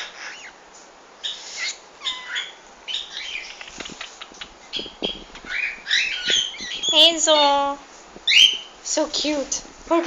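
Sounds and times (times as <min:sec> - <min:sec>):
pet bird chirping: 0:01.2 - 0:08.7
bird wings fluttering: 0:03.6 - 0:05.6.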